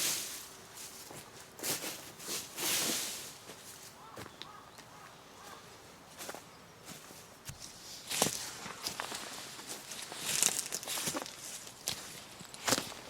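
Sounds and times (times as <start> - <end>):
dry leaves rustling and crunching: 0.0 - 4.2, 7.6 - 13.0.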